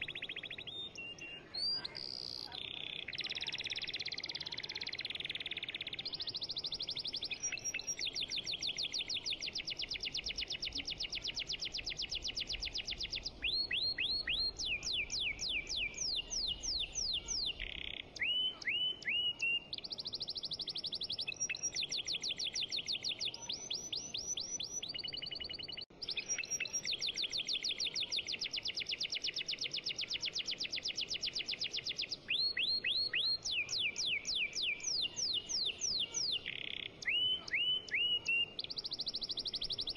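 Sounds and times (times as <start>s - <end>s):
bird-like chirping trills: 0.0s - 39.9s.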